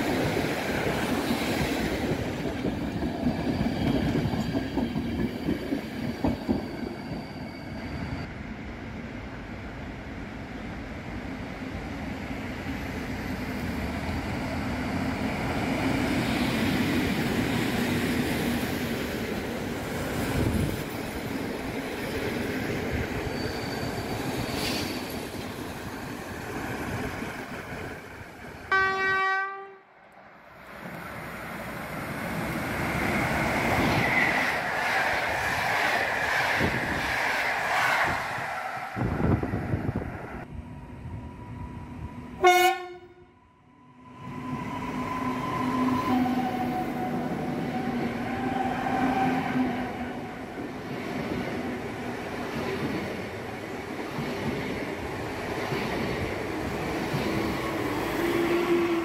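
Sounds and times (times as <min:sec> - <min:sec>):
train wheel and rail rumble: 0:00.0 - 0:59.0
train horn blast: 0:28.7 - 0:30.0, 0:42.4 - 0:43.4.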